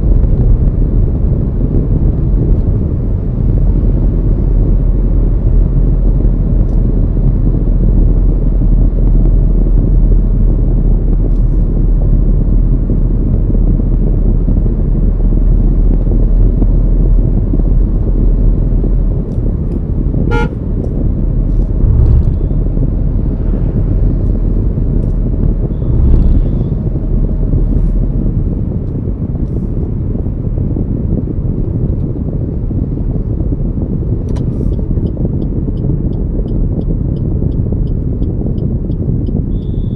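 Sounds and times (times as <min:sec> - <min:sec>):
car wind and road rumble: 0:00.0 - 0:39.9
vehicle horn toot: 0:20.3 - 0:20.6, 0:39.5 - 0:39.9.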